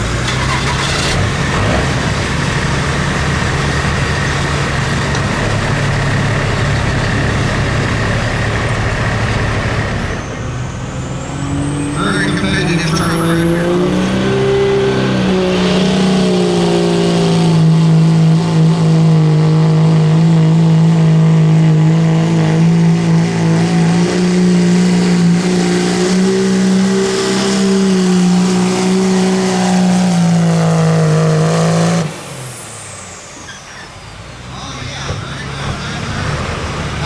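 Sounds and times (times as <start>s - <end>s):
engine running at high revs: 0.0s - 33.3s, 34.2s - 37.0s.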